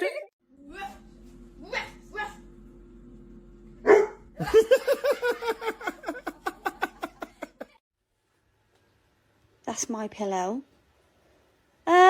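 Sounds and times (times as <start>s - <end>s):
person laughing hard: 4.4s - 7.8s.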